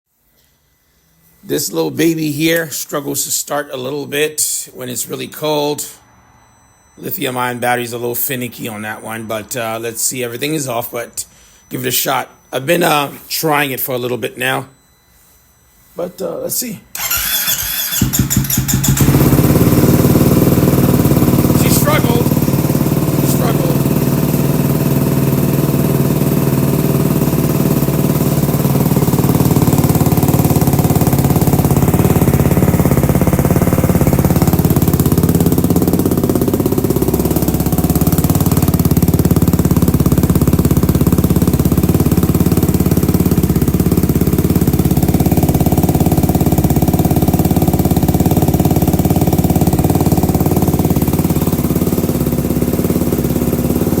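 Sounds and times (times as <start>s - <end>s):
motorcycle engine idling: 17.0s - 54.0s.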